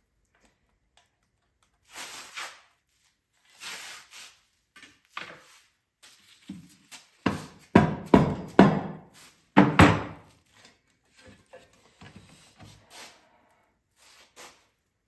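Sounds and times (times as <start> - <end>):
loud knocks on parts: 7.7 - 9.0, 9.6 - 10.2.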